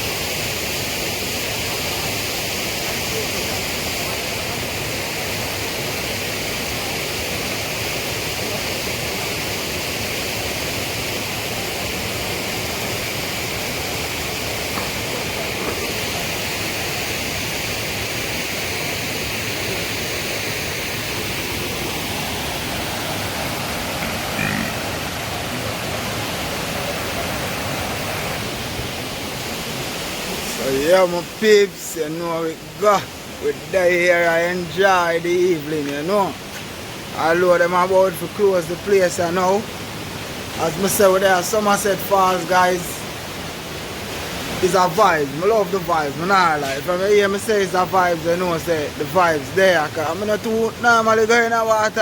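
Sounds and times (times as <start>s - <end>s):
waterfall and river rushing: 0.0s - 52.0s.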